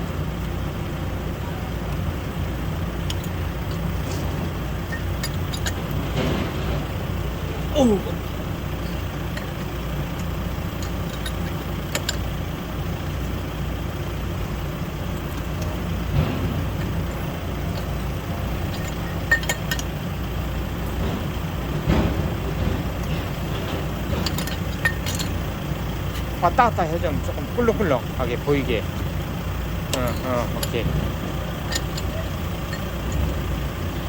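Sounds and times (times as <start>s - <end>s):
diesel engine idling: 0.0s - 34.0s
light metallic clinks: 31.5s - 33.2s.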